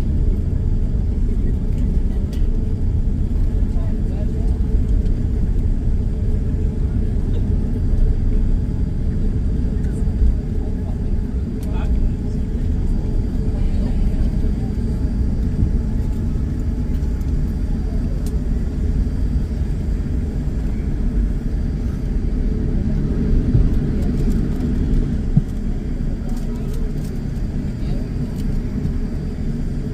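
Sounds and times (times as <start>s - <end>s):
aircraft cabin rumble: 0.0s - 29.9s.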